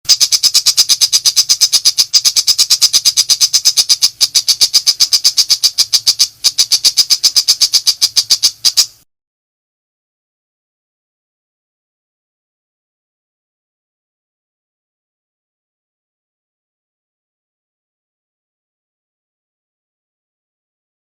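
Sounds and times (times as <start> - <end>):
shrike harsh chattering call: 0.1 - 9.0.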